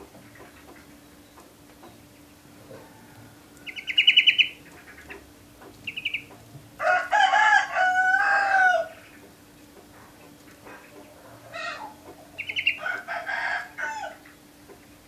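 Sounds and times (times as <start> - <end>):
rooster crowing: 2.6 - 4.1, 6.8 - 9.0, 11.2 - 14.2
canary trilling: 3.6 - 5.2, 5.8 - 6.4, 11.6 - 13.1.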